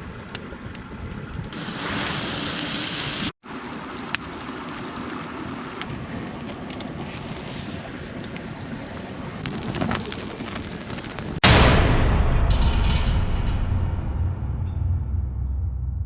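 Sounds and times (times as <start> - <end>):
stream water rushing: 1.6 - 9.2.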